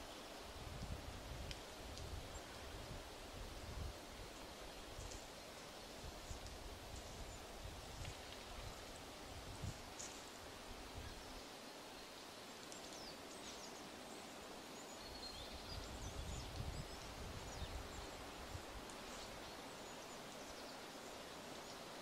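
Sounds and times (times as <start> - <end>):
steady background hiss: 0.0 - 22.0
small birds chirping: 9.9 - 22.0.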